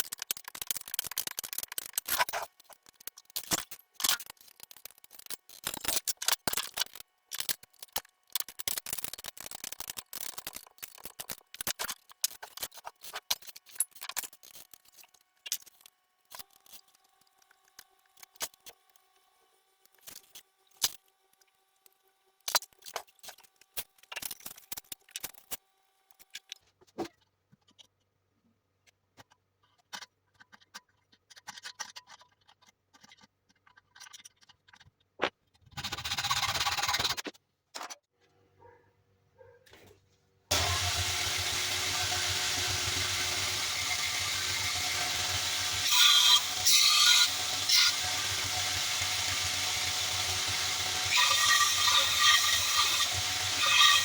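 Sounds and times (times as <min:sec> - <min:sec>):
clicks and knocks of parts handled: 0:00.0 - 0:19.1, 0:19.8 - 0:28.1, 0:28.8 - 0:35.8, 0:37.1 - 0:38.1
belt sander running: 0:40.5 - 0:54.0.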